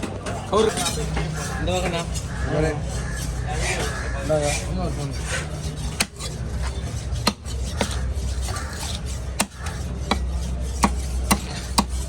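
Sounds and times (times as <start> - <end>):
knife chopping through fish: 3.0 - 12.0.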